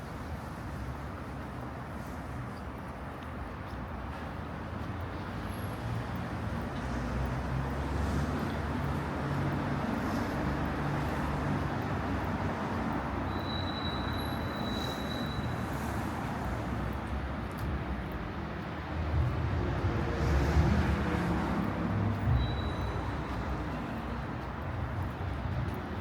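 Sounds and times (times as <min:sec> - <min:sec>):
hum of passing cars: 0:05.2 - 0:13.3, 0:15.5 - 0:22.3.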